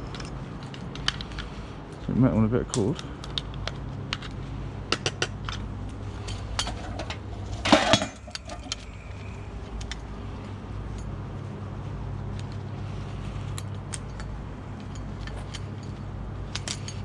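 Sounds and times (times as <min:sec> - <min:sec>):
steady low hum: 0:00.0 - 0:17.0
scrap metal parts clinking: 0:05.4 - 0:09.0, 0:13.6 - 0:17.0.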